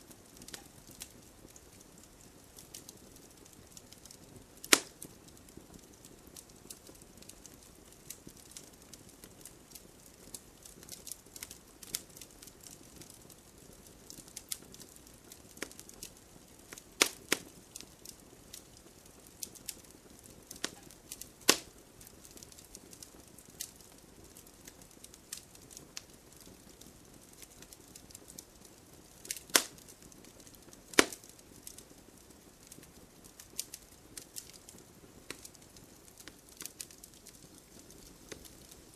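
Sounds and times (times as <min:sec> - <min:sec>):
wood fire crackling: 0:00.0 - 0:38.9
sharp pops and snaps: 0:00.2 - 0:13.2, 0:13.8 - 0:23.8, 0:24.4 - 0:31.9, 0:32.6 - 0:38.9.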